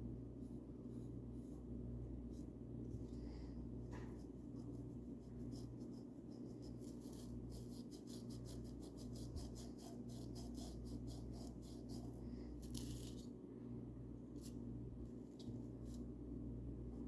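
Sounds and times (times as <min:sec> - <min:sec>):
steady low hum: 0:00.0 - 0:17.0
paintbrush strokes: 0:00.4 - 0:13.4.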